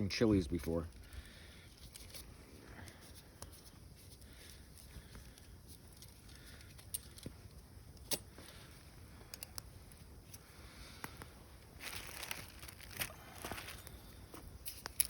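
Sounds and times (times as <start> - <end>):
soft rustling: 8.3 - 15.0.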